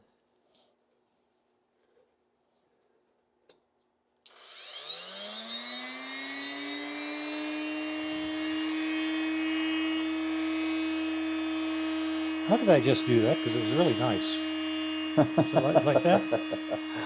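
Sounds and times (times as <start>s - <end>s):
electric grinder motor running: 4.3s - 17.0s.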